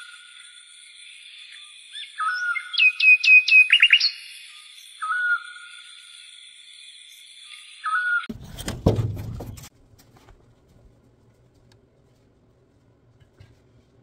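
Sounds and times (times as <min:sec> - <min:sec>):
birds whistling and chirping: 0:01.2 - 0:06.3, 0:06.9 - 0:08.3.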